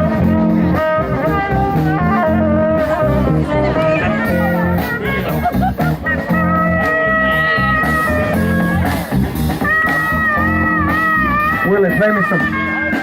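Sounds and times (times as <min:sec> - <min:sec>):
blues band playing live: 0:00.0 - 0:13.0.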